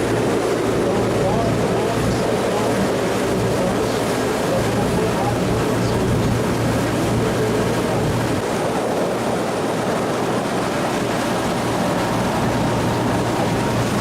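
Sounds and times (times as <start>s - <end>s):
boat engine humming: 0.0s - 14.0s
water rushing: 0.0s - 14.0s.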